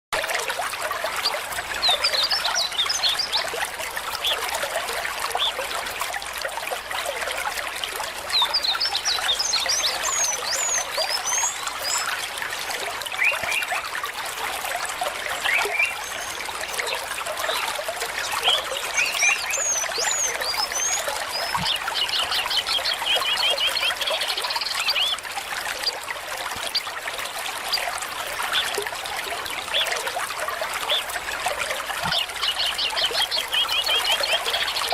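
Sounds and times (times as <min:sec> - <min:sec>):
stream trickling: 0:00.1 - 0:34.9
birds chirping: 0:15.4 - 0:25.2.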